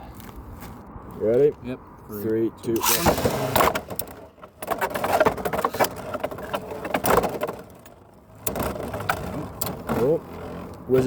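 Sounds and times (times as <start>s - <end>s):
spinning tops launching: 2.8s - 4.0s.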